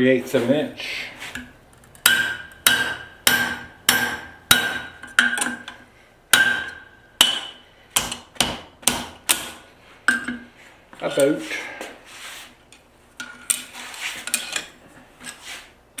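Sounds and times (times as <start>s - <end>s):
hammer striking steel punch: 2.0s - 10.4s.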